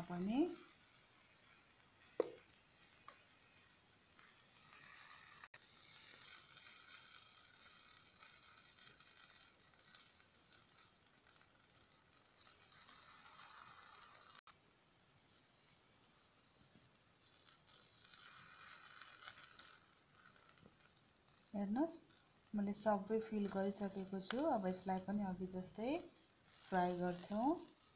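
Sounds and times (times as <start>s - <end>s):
vegetables sizzling in oil: 0.0s - 27.9s.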